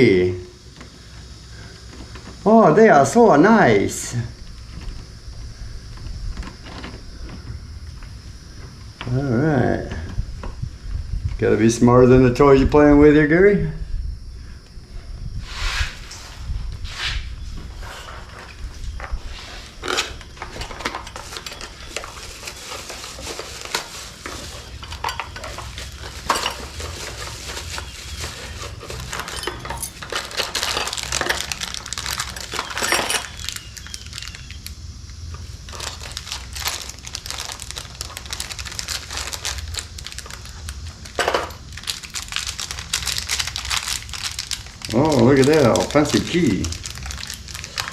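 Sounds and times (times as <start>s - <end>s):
metal lock parts clinking: 28.8s - 31.6s, 32.3s - 33.4s.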